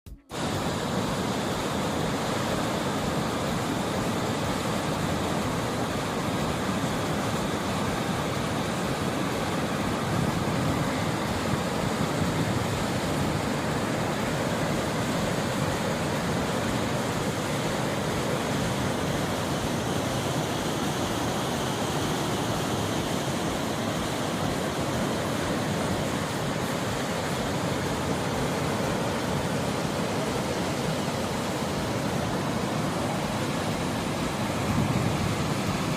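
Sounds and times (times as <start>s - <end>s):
waterfall rushing: 0.3s - 35.9s.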